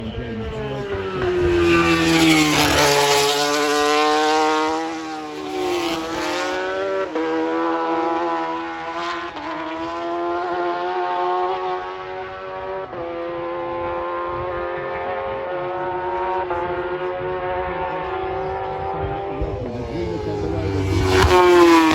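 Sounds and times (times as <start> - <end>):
superbike engine revving high: 0.0 - 21.9.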